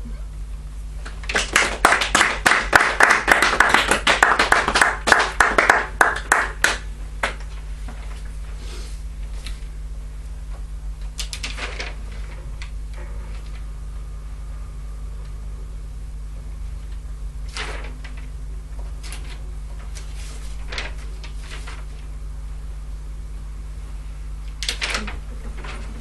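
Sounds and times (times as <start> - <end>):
audience clapping: 1.0 - 7.5.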